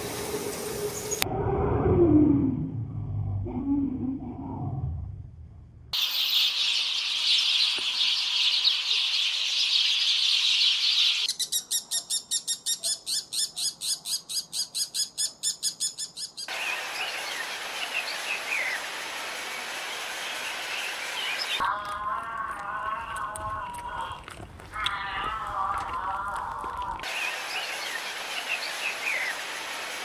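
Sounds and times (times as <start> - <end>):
rapid repeated bird call: 6.0 - 18.9, 27.0 - 29.5.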